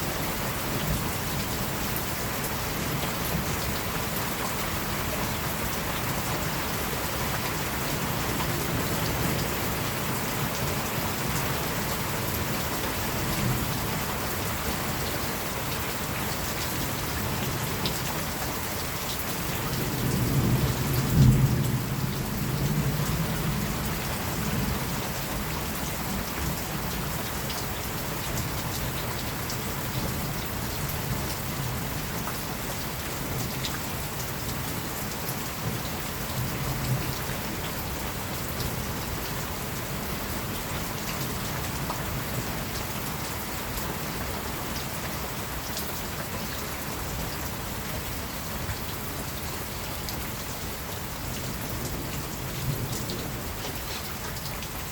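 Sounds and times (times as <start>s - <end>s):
steady rainfall: 0.0s - 54.9s.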